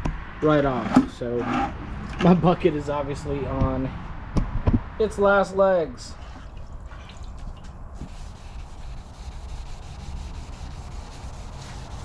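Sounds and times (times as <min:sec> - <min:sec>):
wet-sanding plastic: 0:07.4 - 0:12.0.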